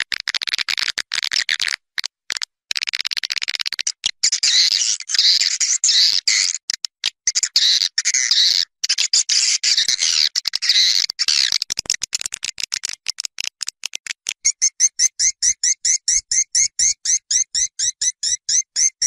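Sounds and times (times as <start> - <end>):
swiftlet twittering calls: 14.4 - 19.0.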